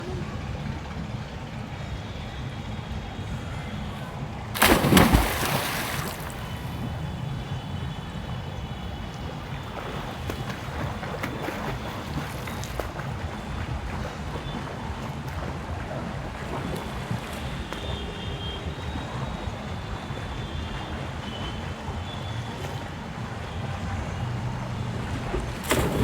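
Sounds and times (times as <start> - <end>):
low rumble of water and wind: 0.0 - 26.0
water splashing around swimmer: 4.5 - 23.7, 25.0 - 26.0.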